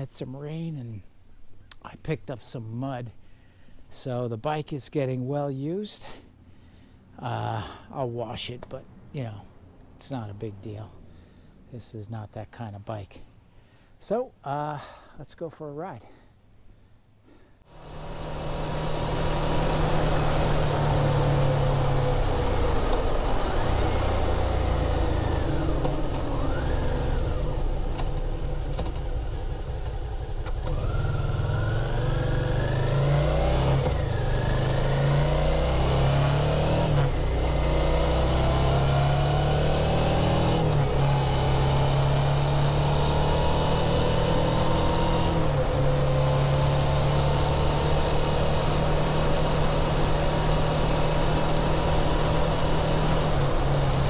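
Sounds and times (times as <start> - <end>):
motorcycle engine accelerating: 17.7 - 54.0.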